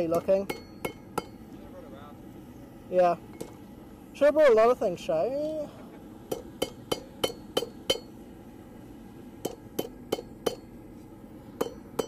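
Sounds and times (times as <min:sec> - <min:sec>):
hammer striking steel on anvil: 0:00.0 - 0:01.4, 0:06.3 - 0:08.2, 0:09.4 - 0:10.7, 0:11.6 - 0:12.0.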